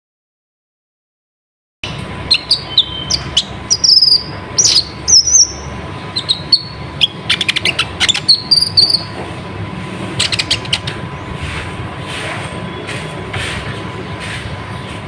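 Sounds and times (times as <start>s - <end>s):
bird singing high chirps: 1.8s - 9.2s, 10.2s - 10.9s
low background hum: 1.8s - 15.0s.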